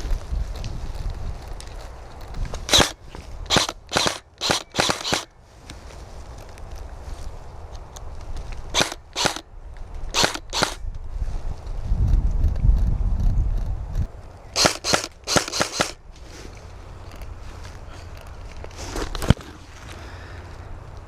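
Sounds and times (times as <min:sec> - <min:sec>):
airsoft gun shots: 0:02.7 - 0:05.3, 0:08.7 - 0:09.4, 0:10.1 - 0:10.8, 0:14.6 - 0:16.0.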